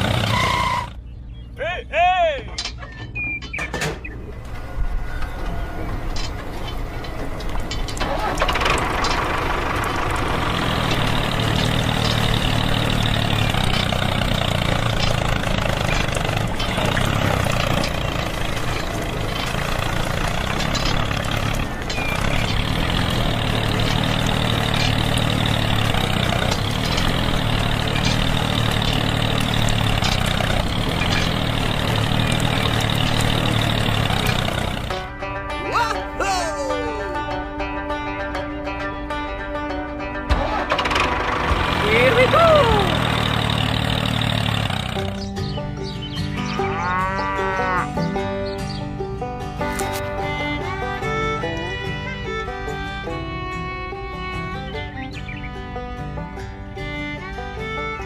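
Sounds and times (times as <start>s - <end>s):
small tractor engine idling: 0.0s - 1.4s, 4.0s - 35.2s, 40.3s - 46.6s.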